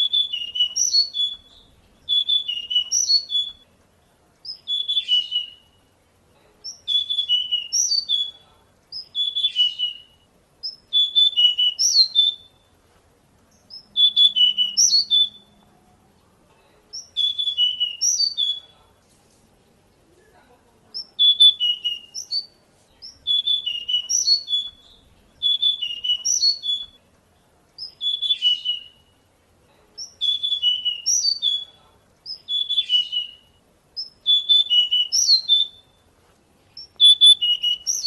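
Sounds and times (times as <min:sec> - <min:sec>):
bird chirping and whistling: 0:00.0 - 0:03.7, 0:04.4 - 0:05.8, 0:06.7 - 0:12.6, 0:13.6 - 0:15.6, 0:17.0 - 0:18.7, 0:21.0 - 0:27.0, 0:27.8 - 0:29.1, 0:30.0 - 0:36.0, 0:36.8 - 0:38.0.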